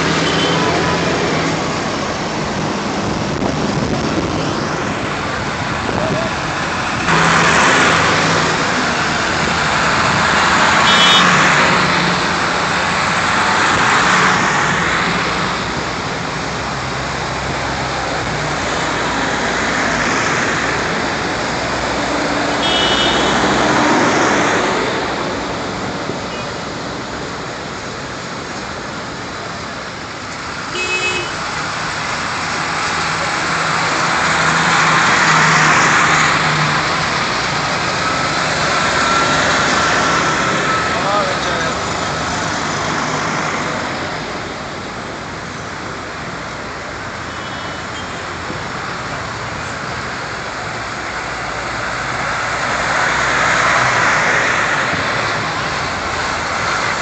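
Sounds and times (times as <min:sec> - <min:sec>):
tractors driving past: 0:00.0 - 0:26.2, 0:31.3 - 0:45.8.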